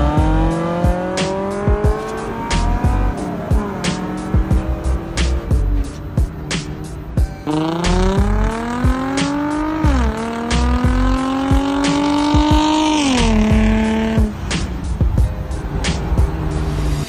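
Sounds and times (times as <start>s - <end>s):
car engine accelerating hard: 0.0s - 17.0s
music with drum beat: 0.0s - 17.0s.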